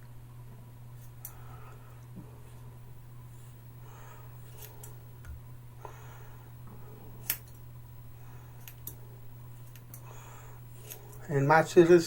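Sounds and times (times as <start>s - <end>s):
steady low hum: 0.0s - 12.0s
scissors snipping hair: 7.2s - 7.6s, 9.6s - 10.0s.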